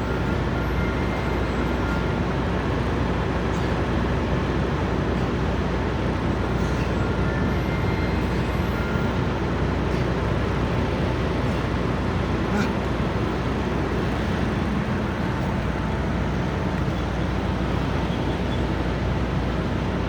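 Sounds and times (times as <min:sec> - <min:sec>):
diesel trucks idling: 0:00.0 - 0:20.0
passing vehicles: 0:00.0 - 0:20.0.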